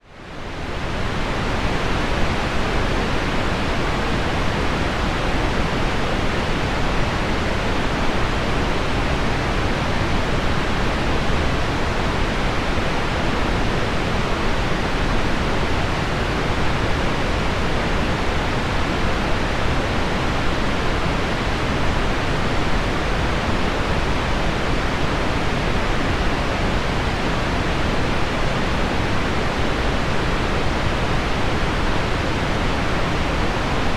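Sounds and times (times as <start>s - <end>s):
pink noise: 0.2s - 33.9s.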